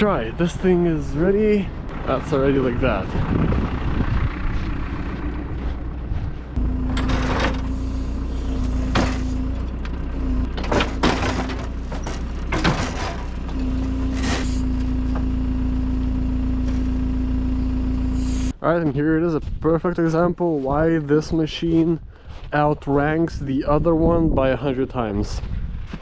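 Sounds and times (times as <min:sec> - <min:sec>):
diesel engine under load: 0:00.0 - 0:18.6
hydraulic whine: 0:03.3 - 0:18.6
clunks: 0:04.5 - 0:15.6.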